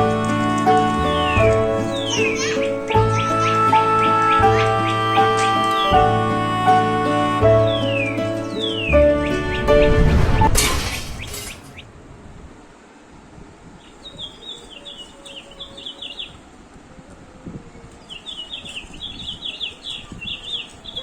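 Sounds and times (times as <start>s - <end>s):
quick high chirps: 0.0s - 6.1s, 7.6s - 11.8s
music track: 0.0s - 10.6s.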